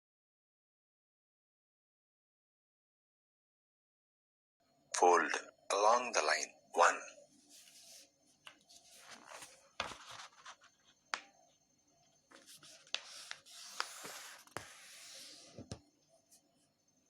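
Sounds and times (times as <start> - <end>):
paper rustling: 7.3 - 11.3, 12.3 - 15.8
crisp paper crease clicks: 12.3 - 14.6.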